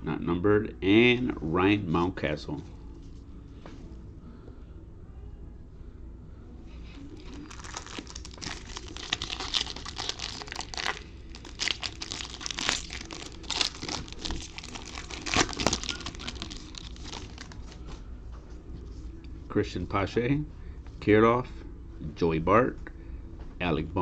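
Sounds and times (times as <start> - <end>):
wrapper crinkling and tearing: 7.1 - 17.8.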